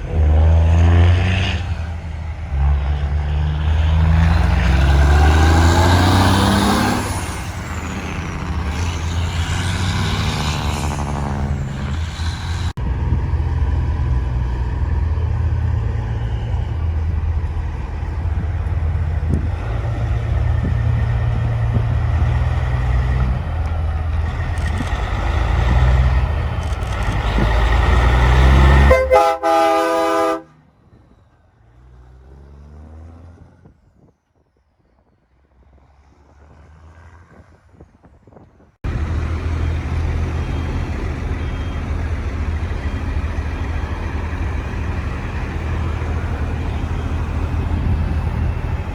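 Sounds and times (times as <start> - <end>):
truck engines running: 0.0 - 48.9
truck horn: 27.0 - 30.6.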